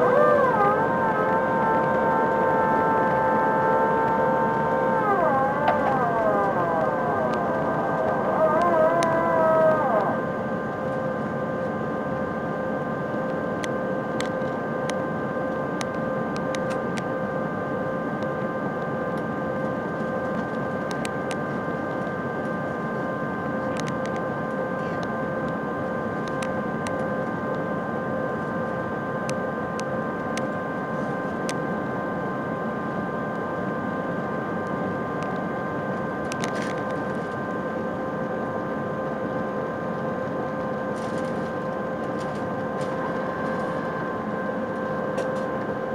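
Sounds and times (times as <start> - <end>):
faint clicks: 0.0 - 10.2
airplane cabin engine drone: 0.0 - 45.9.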